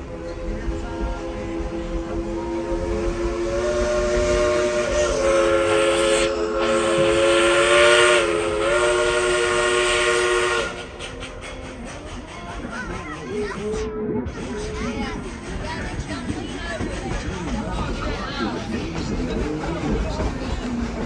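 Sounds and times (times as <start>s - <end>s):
train running noise: 0.0s - 21.0s
steam locomotive chime whistle: 0.3s - 12.7s.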